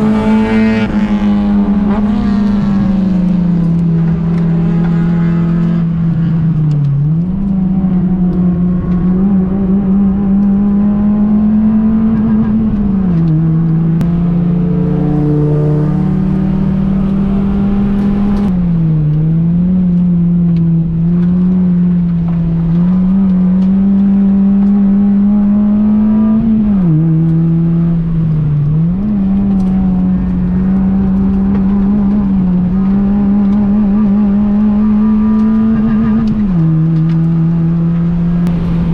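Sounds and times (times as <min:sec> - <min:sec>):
car engine revving high: 0:00.0 - 0:18.5, 0:28.8 - 0:38.9.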